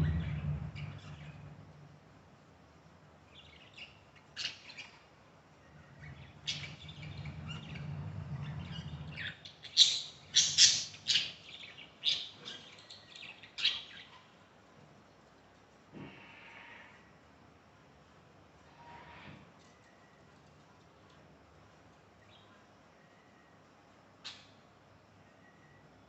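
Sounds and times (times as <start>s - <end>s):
budgerigars chirping and squawking: 0.0s - 1.5s, 5.9s - 14.2s.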